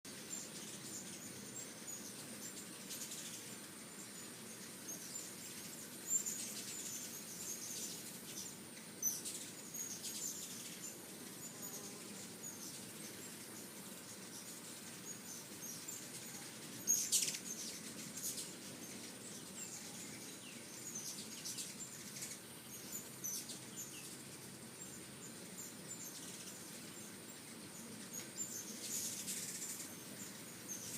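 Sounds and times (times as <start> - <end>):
hummingbirds chipping and twittering: 0.1 - 30.9.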